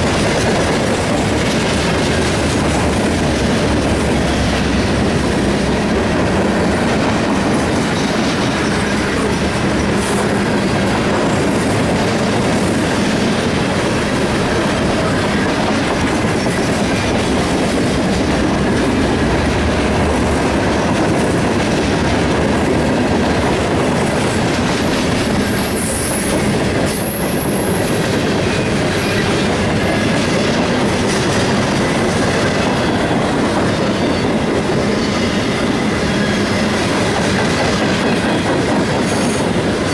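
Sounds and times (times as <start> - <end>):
freight train wheels rumbling: 0.0 - 39.9
train wheels squealing: 7.8 - 13.3, 23.7 - 39.9.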